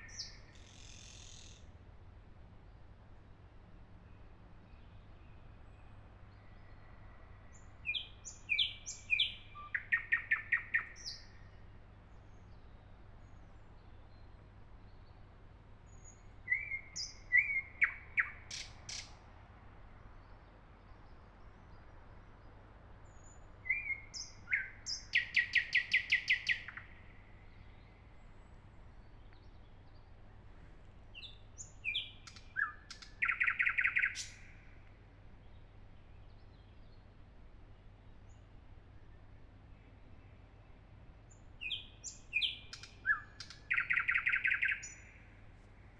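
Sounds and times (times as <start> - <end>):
nightingale singing: 0.0 - 1.6, 7.5 - 11.4, 15.9 - 19.2, 23.2 - 28.0, 31.1 - 34.6, 41.6 - 45.2.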